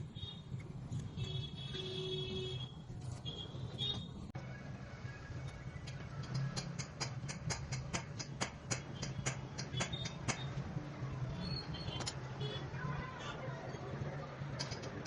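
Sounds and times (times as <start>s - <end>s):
rapid sharp clicks: 5.4s - 10.6s, 14.4s - 15.0s.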